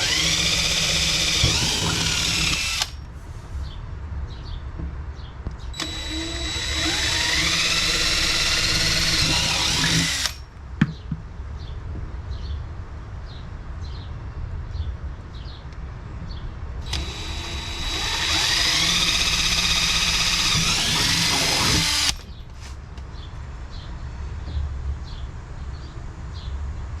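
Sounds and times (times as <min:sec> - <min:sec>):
power drill whining: 0:00.0 - 0:03.0, 0:05.8 - 0:10.4, 0:16.9 - 0:22.3.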